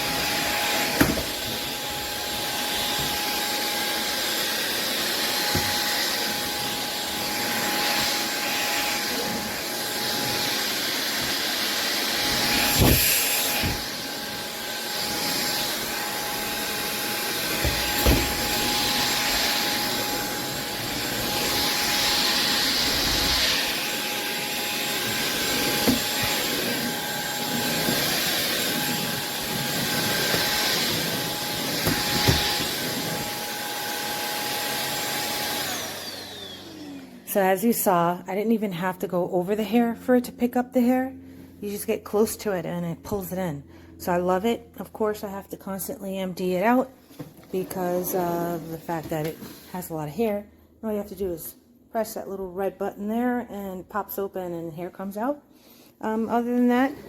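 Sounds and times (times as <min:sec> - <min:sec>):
stick vacuum cleaner whine: 0:00.0 - 0:37.9.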